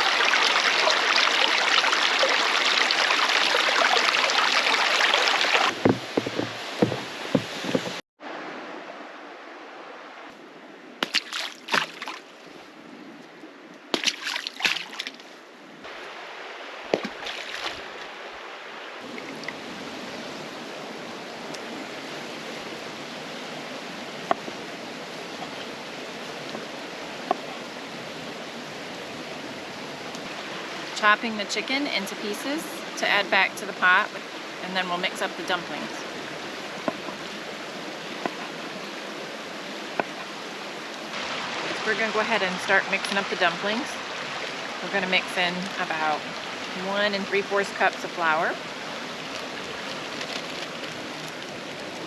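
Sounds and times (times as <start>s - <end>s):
mountain creek running: 0.0s - 8.0s, 11.0s - 12.9s, 13.8s - 52.0s
sharp knocks and clatters: 5.7s - 8.0s.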